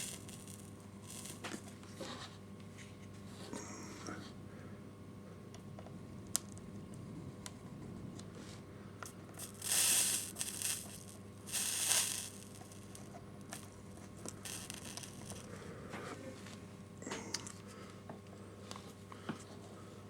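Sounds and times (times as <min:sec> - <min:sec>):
soldering iron sizzling on solder: 0:00.0 - 0:01.8, 0:09.1 - 0:15.6.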